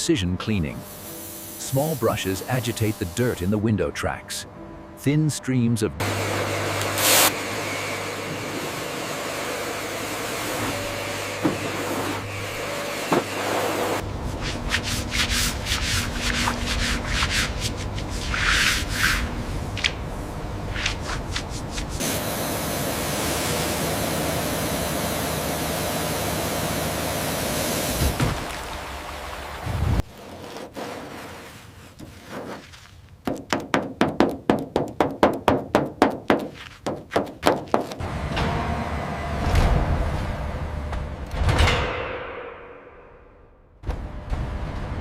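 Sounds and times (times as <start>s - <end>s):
brushes scrubbing: 13.4s - 19.4s, 30.1s - 33.2s, 36.3s - 38.0s.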